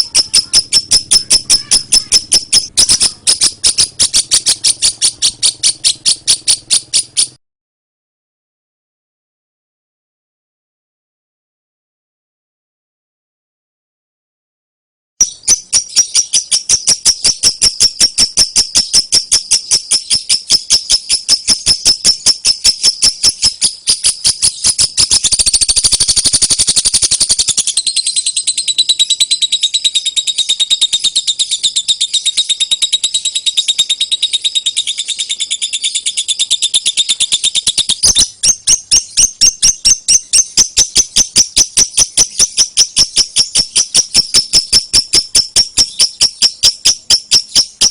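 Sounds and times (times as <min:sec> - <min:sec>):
bird chattering shrill chirps: 0:00.0 - 0:07.4, 0:15.2 - 0:47.9.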